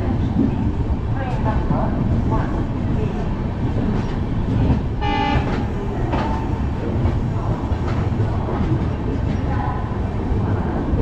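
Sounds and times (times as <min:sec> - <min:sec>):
train wheels rumbling on rails: 0:00.0 - 0:11.0
train horn blast: 0:05.0 - 0:05.6.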